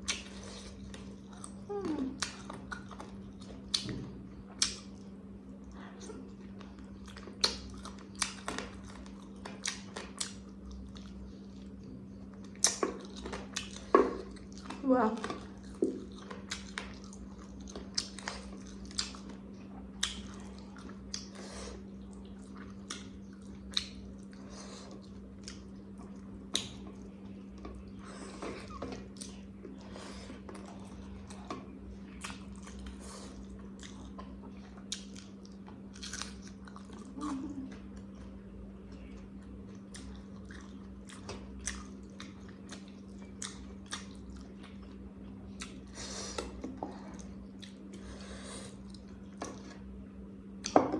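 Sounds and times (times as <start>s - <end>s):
steady low hum: 0.0s - 50.9s
person chewing and biting food: 15.5s - 38.2s, 39.5s - 49.9s.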